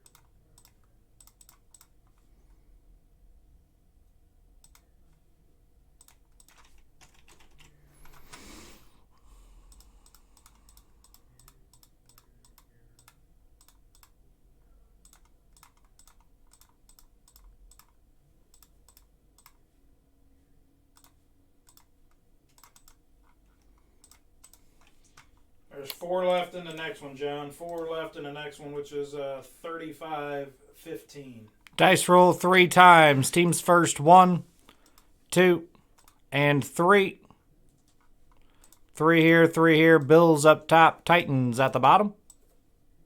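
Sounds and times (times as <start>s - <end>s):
keyboard typing: 0.0s - 2.3s, 6.0s - 8.7s, 9.7s - 14.2s, 15.0s - 19.6s, 20.9s - 25.4s.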